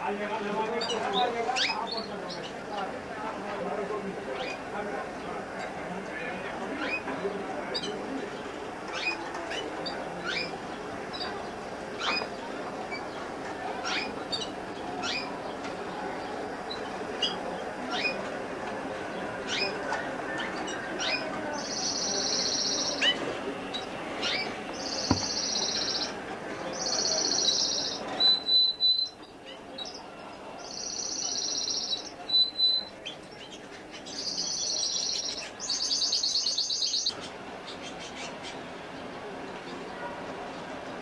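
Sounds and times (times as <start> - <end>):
songbird trilling: 20.4 - 23.2, 24.2 - 26.1, 26.8 - 29.2.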